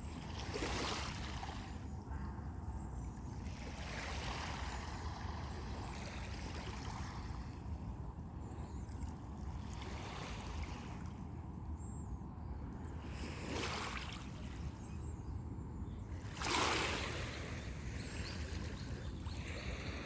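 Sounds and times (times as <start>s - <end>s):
waves breaking on beach: 16.3s - 17.6s.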